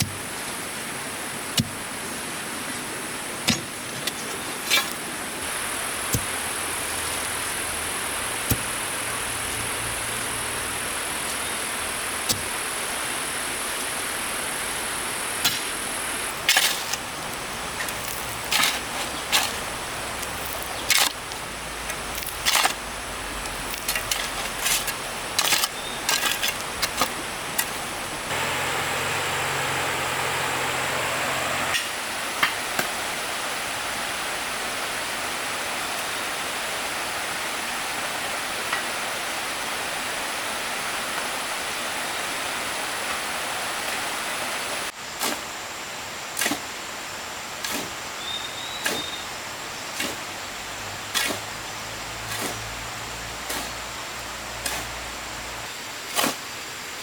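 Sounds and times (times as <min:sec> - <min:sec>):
flowing water rushing: 0:00.0 - 0:44.9.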